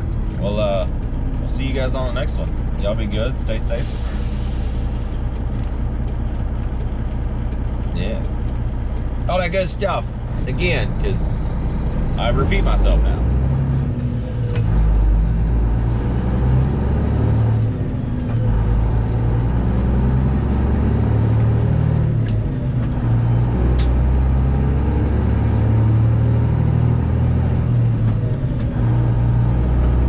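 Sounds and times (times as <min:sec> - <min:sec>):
truck diesel engine running: 0:00.0 - 0:30.0
sharp clicks: 0:23.8 - 0:24.0.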